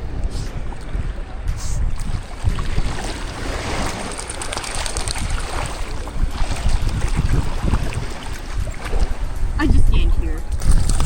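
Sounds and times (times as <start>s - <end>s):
wind rumbling on microphone: 0.0s - 11.0s
seawater sloshing around legs: 2.0s - 9.4s.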